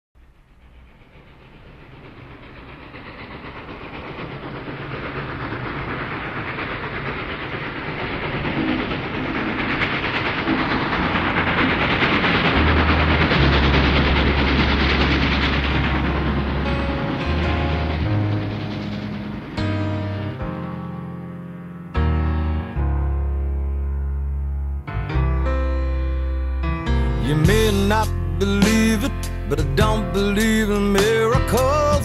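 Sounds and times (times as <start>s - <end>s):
low sustained notes: 0.2s - 21.4s
train running on rails: 0.2s - 24.3s, 24.9s - 32.0s.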